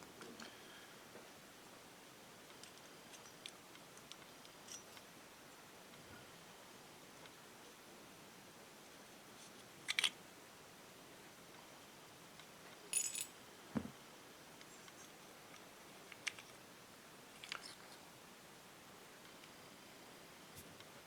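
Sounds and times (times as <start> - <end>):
small metal parts clinking: 12.9 - 13.4
dull knock: 13.8 - 14.0.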